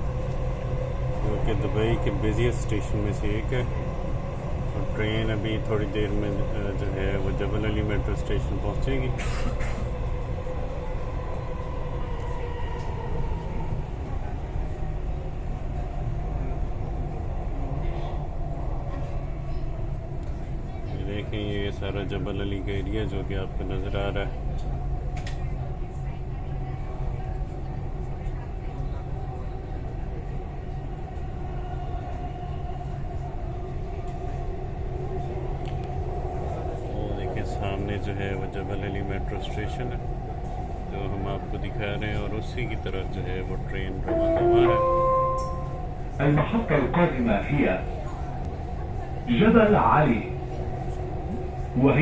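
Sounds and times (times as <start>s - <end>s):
train low rumble: 0.0s - 52.0s
faint whine dropping in pitch: 44.0s - 45.9s.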